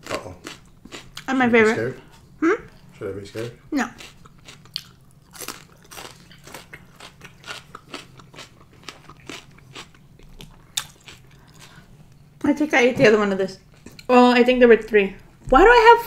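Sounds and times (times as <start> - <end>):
person chewing crunchy food: 0.0 - 12.3.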